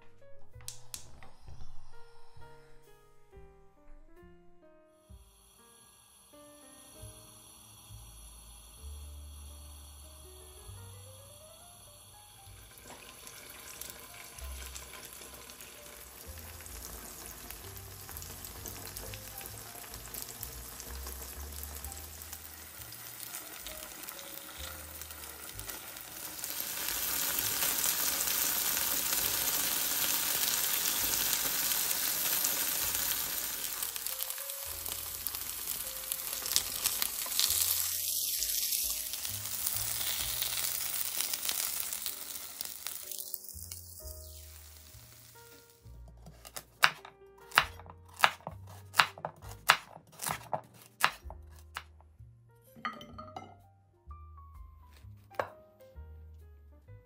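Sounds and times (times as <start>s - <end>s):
tofu sizzling in hot oil: 5.2s - 49.0s.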